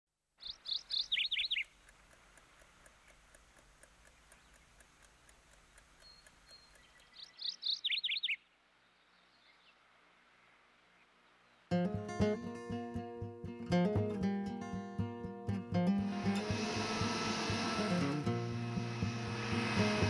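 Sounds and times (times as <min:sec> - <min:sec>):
open-air ambience: 0:00.2 - 0:20.0
faint rapid ticking: 0:00.4 - 0:07.4
songbird singing: 0:00.4 - 0:11.8.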